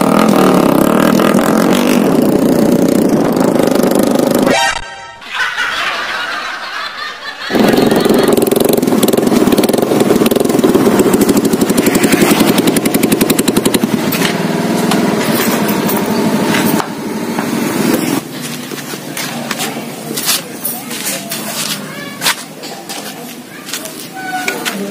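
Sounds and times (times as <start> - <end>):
motorcycle engine running: 0.0 - 4.6, 7.5 - 22.2.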